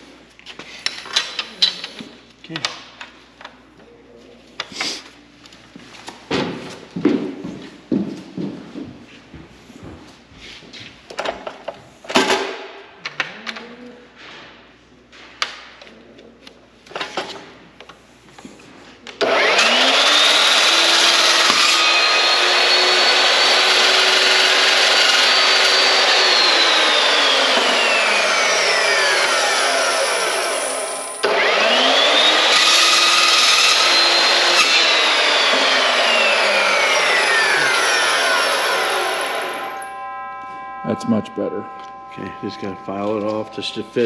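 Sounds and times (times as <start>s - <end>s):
electric miter saw whine: 19.2s - 44.0s.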